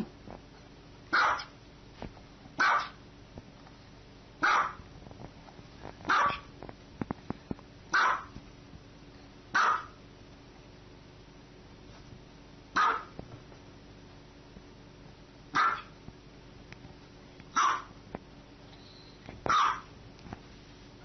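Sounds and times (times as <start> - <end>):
small dog barking: 1.1 - 1.6, 2.6 - 3.0, 4.4 - 4.8, 6.1 - 6.5, 7.9 - 8.4, 9.5 - 10.0, 12.7 - 13.2, 15.5 - 16.0, 17.5 - 18.0, 19.5 - 19.9.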